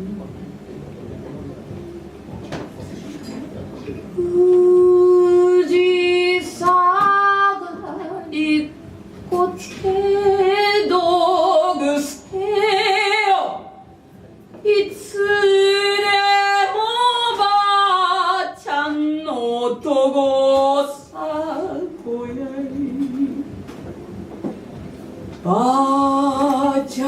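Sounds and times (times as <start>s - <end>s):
woman singing with vibrato: 4.2s - 14.0s, 14.6s - 23.7s, 25.4s - 27.0s.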